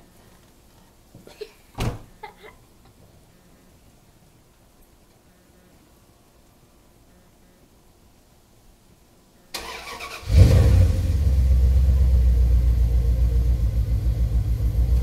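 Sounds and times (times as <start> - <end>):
pickup engine starting and idling: 9.5 - 15.0.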